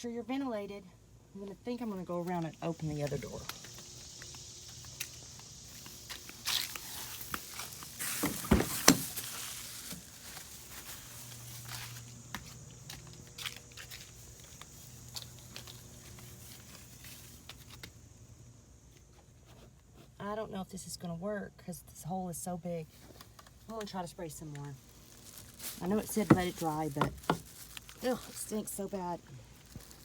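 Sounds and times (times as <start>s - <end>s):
footsteps: 3.1s - 17.9s, 25.1s - 28.3s
car door opening: 8.1s - 9.2s.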